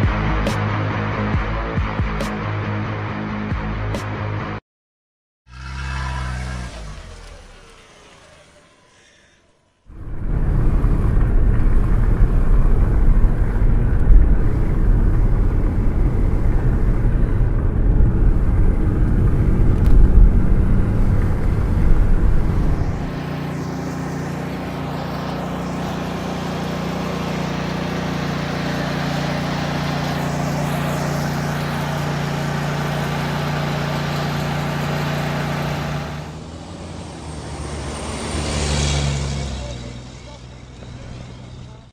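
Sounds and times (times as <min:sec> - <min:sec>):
construction machinery engine rumble: 0:10.0 - 0:36.3.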